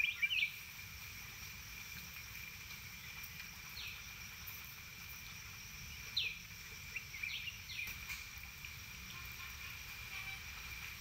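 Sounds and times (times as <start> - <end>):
small birds calling: 0.0 - 0.6, 5.9 - 8.2
high insect drone: 0.0 - 11.0.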